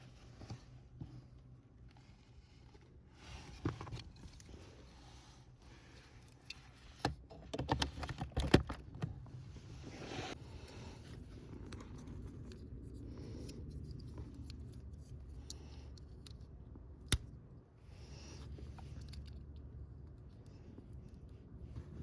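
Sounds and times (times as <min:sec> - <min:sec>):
handling clicks and rustles: 0:00.0 - 0:17.5, 0:18.2 - 0:22.0
steady low hum: 0:08.6 - 0:22.0.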